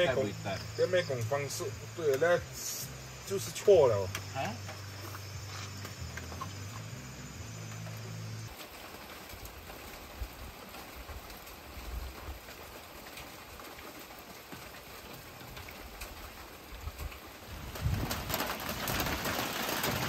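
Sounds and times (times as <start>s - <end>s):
low hum: 0.0s - 8.6s
steady rain hiss: 0.0s - 20.0s.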